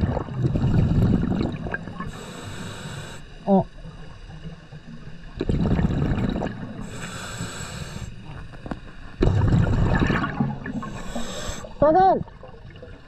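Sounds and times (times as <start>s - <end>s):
bubbling exhaled air: 0.0s - 3.3s, 5.3s - 11.8s
high hissing inhale: 2.0s - 3.4s, 6.8s - 8.4s, 10.6s - 11.8s.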